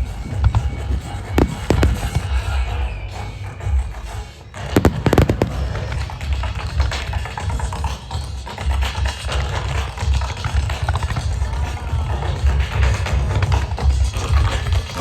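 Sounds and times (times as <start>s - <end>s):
low rumble: 0.0s - 4.1s
fireworks booming: 0.2s - 3.9s, 4.6s - 7.8s.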